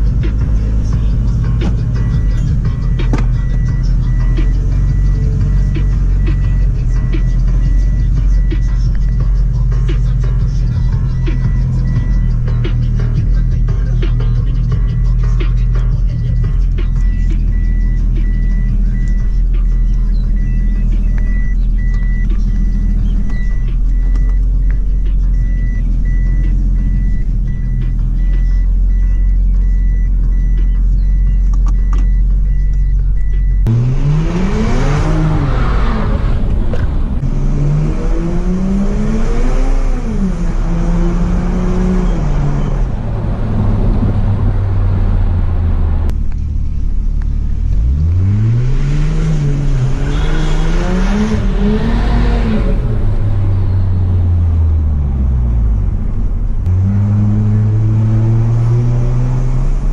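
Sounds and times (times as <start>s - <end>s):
car engine revving: 0.0s - 59.9s
faint repeating beep: 2.0s - 9.3s, 11.0s - 12.4s, 16.4s - 33.7s.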